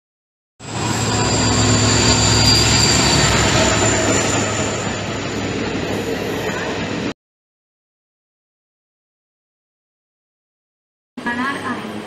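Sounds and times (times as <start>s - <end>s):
thin high whine: 0.6s - 7.0s
electric train rushing past: 0.6s - 7.2s.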